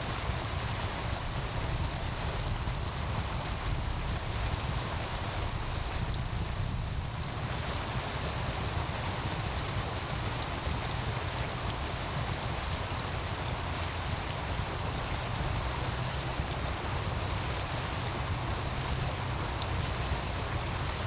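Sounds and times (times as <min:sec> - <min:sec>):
stream rushing: 0:00.0 - 0:21.0
wood fire crackling: 0:00.0 - 0:21.0
low rumble: 0:00.1 - 0:21.0.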